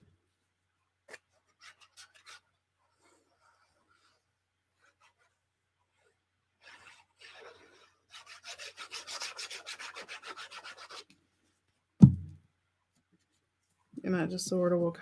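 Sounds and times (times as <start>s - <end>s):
rubbing on paper: 1.1s - 4.2s, 4.8s - 11.1s
sharp thump: 12.0s - 12.4s.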